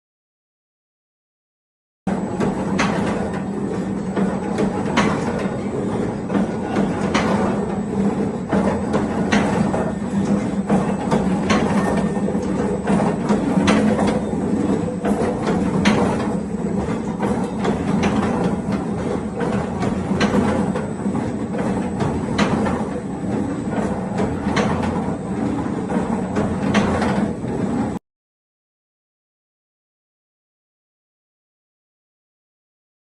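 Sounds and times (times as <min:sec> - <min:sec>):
machine humming: 0:02.1 - 0:28.0.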